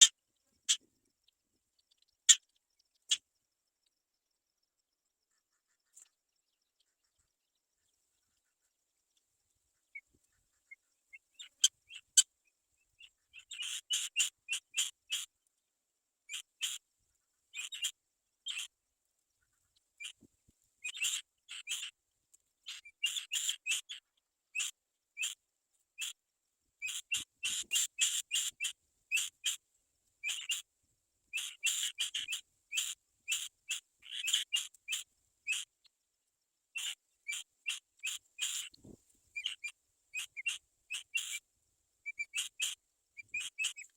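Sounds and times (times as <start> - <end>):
kite chicks whistle-like calls: 42.1 - 43.9.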